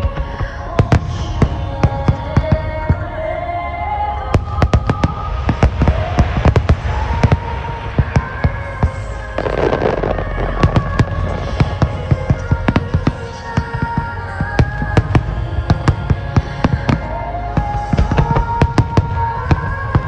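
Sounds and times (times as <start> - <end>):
music with long held notes: 0.0 - 20.0
fireworks bursting: 4.3 - 20.0
fireworks crackling: 4.4 - 20.0.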